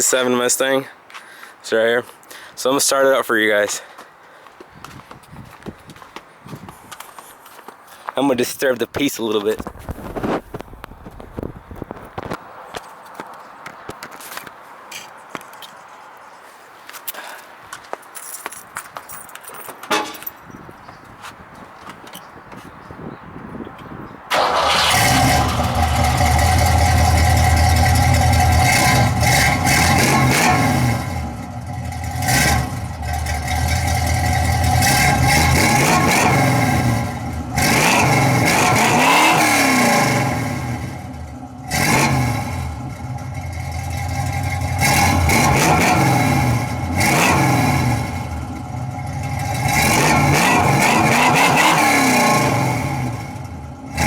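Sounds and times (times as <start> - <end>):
car engine revving: 24.3 - 54.0
car engine starting: 24.3 - 54.0.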